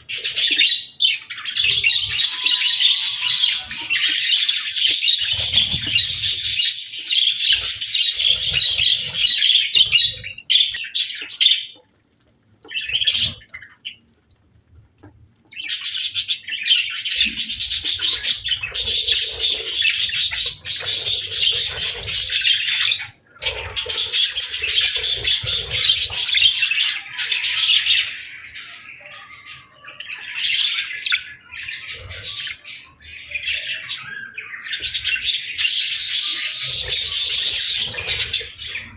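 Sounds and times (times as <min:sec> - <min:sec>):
budgerigars chirping: 0:00.0 - 0:11.6, 0:15.8 - 0:28.1, 0:30.2 - 0:38.9.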